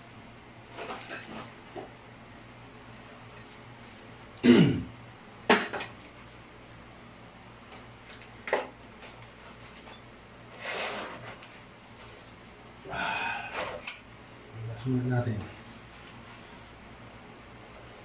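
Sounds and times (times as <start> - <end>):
person coughing: 4.4 - 4.9.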